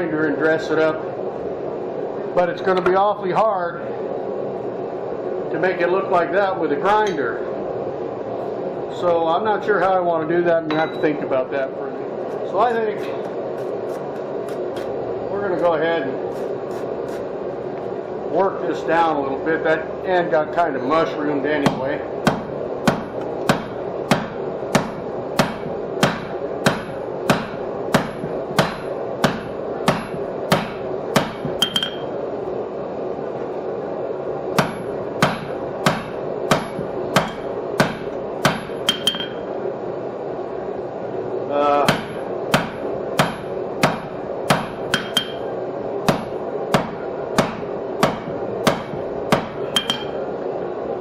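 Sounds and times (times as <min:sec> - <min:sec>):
steady background noise: 0:00.0 - 0:51.0
hammer striking steel on anvil: 0:21.7 - 0:32.1, 0:34.6 - 0:39.4, 0:41.8 - 0:45.5, 0:46.1 - 0:50.2.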